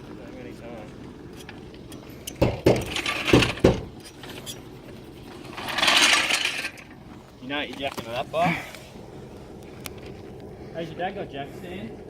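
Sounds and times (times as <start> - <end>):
rough scraping hiss: 1.3 - 9.1.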